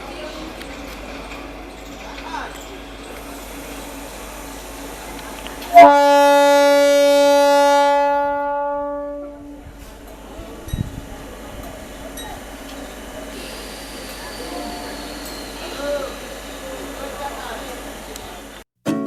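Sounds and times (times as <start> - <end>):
locomotive horn blast: 5.7 - 10.0.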